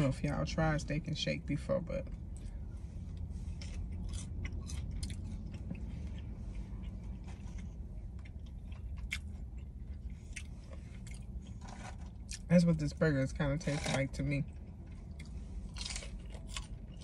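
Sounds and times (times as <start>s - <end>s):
steady low hum: 0.0s - 17.0s
person chewing wetly: 3.2s - 12.5s, 14.5s - 17.0s.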